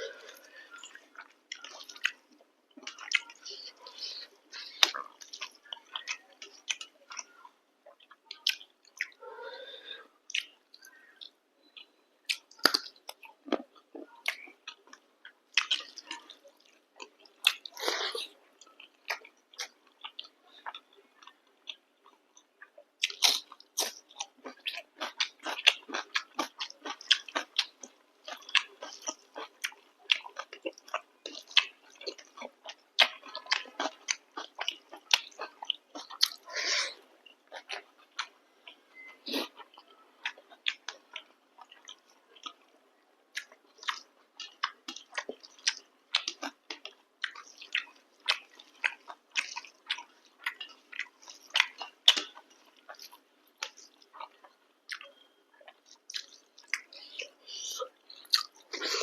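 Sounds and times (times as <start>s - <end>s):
person chewing food: 0.0s - 59.0s.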